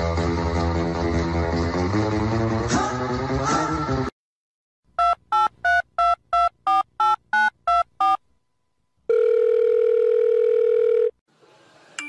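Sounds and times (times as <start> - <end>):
telephone keypad beeps: 5.0 - 8.2
steady telephone tone: 9.1 - 11.2.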